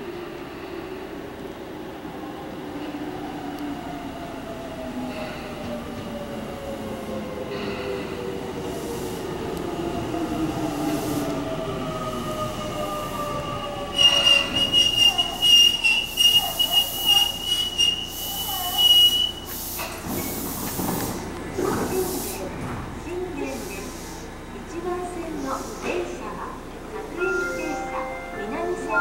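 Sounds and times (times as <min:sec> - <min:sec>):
high wavering brake squeal: 0:13.8 - 0:19.5.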